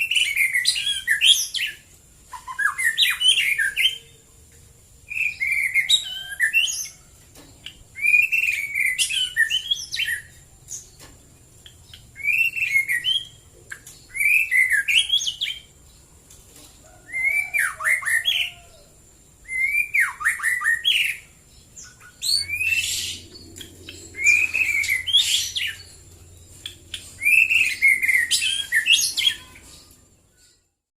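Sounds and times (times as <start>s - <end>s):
bird singing whistled phrases: 0.0s - 4.1s, 5.1s - 7.0s, 8.0s - 10.3s, 12.2s - 13.4s, 14.1s - 15.7s, 17.1s - 18.7s, 19.4s - 25.9s, 27.2s - 29.8s.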